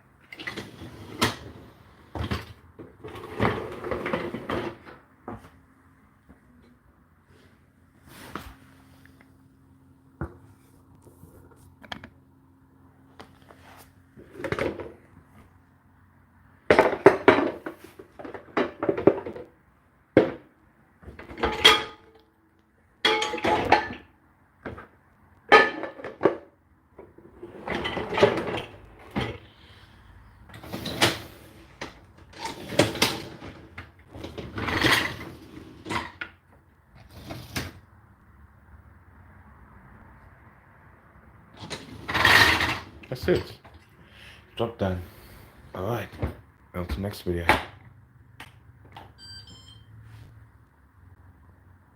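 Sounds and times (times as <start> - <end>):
dishwasher low hum: 0.0 - 19.6, 20.2 - 22.2, 23.0 - 37.8
dishes clinking: 23.1 - 24.0.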